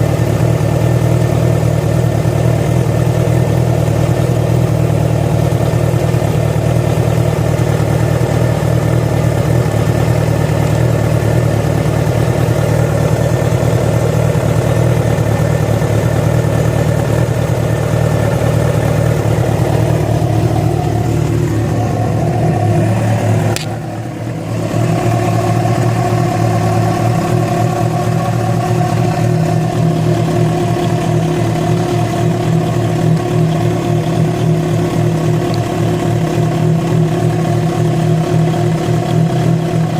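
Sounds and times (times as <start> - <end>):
motorcycle engine running: 0.0 - 39.9
click: 23.5 - 23.8, 35.5 - 35.7.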